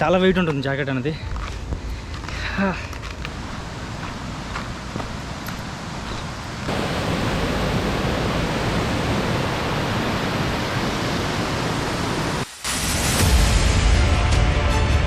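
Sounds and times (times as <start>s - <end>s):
rushing falling water: 3.3s - 13.6s.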